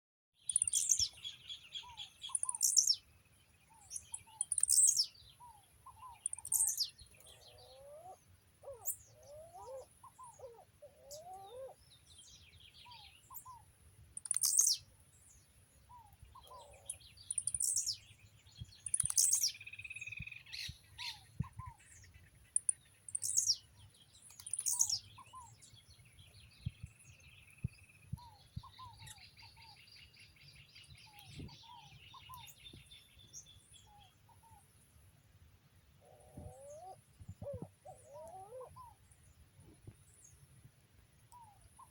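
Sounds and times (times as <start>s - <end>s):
soft low paired bird notes: 0.4s - 41.9s
sharp high falling bird calls: 24.3s - 25.7s.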